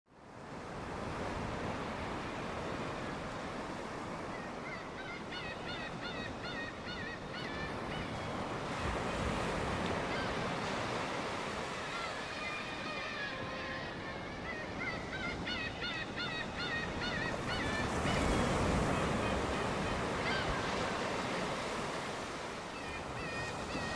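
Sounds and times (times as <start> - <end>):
gulls mewing cries: 4.3 - 8.9, 11.6 - 21.7.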